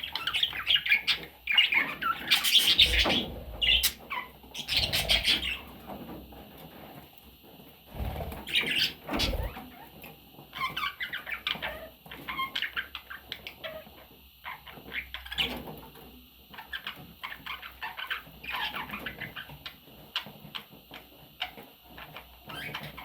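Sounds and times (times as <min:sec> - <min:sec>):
budgerigar chattering: 0:04.6 - 0:05.6.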